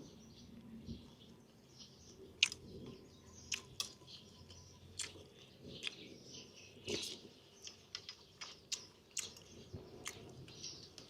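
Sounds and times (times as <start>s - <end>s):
chewing with wet mouth clicks: 2.4s - 6.1s, 6.9s - 11.0s.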